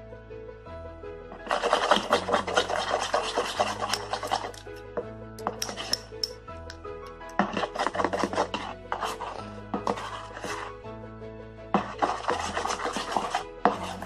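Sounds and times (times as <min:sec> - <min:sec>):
background music: 0:00.0 - 0:14.0
utensil scraping bowl: 0:01.3 - 0:04.8, 0:05.4 - 0:10.8, 0:11.7 - 0:14.0.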